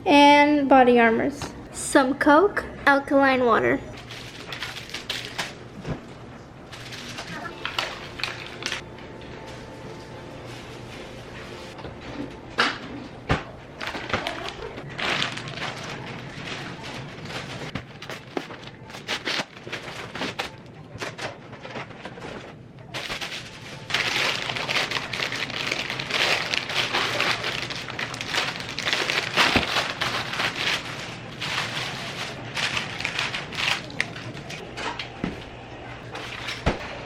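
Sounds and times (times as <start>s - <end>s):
plastic packaging crinkling: 4.0s - 5.6s, 6.7s - 8.8s, 13.8s - 22.2s, 22.9s - 34.6s.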